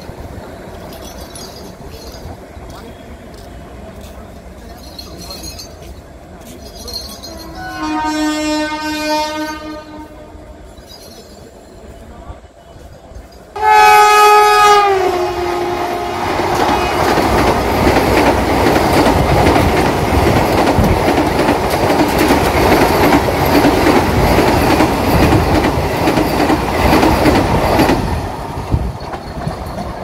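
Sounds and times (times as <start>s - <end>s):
train wheels rumbling and clattering: 0.0s - 12.1s, 12.7s - 30.0s
train horn chord: 7.5s - 10.4s, 13.6s - 17.3s.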